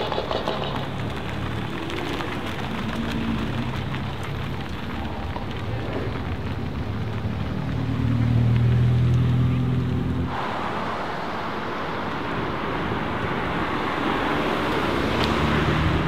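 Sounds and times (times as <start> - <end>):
car engine low exhaust note: 2.0 - 10.3.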